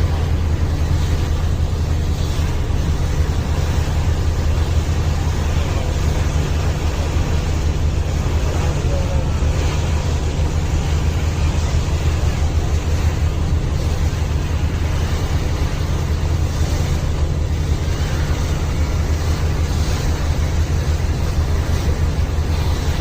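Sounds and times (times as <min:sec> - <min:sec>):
boat engine drone: 0:00.0 - 0:23.0
water noise: 0:00.0 - 0:23.0
wind: 0:00.0 - 0:23.0.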